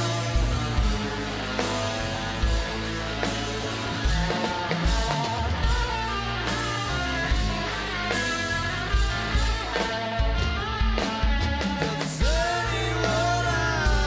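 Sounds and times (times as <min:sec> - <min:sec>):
bass guitar: 0:00.0 - 0:14.0
drum kit hits: 0:00.0 - 0:14.0
electric guitars: 0:00.0 - 0:14.0.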